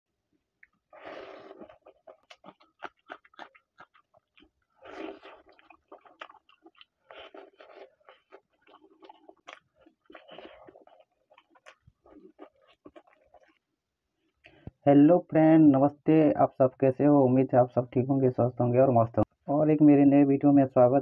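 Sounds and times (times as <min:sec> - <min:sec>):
wet chewing and lip-smacking: 0:01.5 - 0:14.7.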